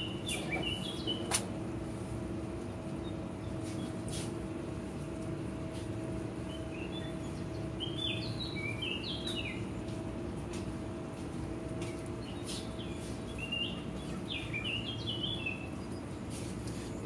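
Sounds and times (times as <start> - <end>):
small birds chirping: 0.0 - 1.5, 2.9 - 4.3, 6.4 - 10.1, 11.8 - 17.0
steady low hum: 0.0 - 17.0.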